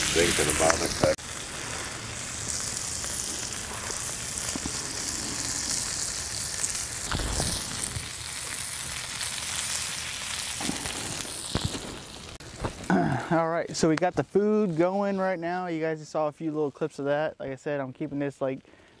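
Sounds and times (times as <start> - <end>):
food sizzling on a griddle: 0.0 - 16.0
fat popping: 7.0 - 8.6, 10.6 - 13.2.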